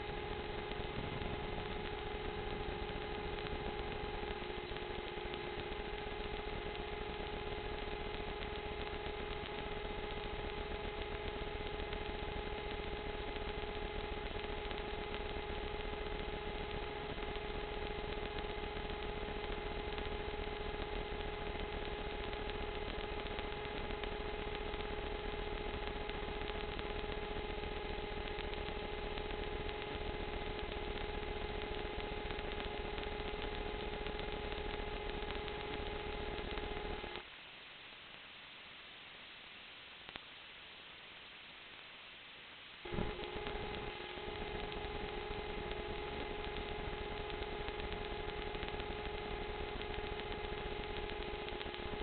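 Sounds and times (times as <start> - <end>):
drone propellers humming: 0.3 - 4.6.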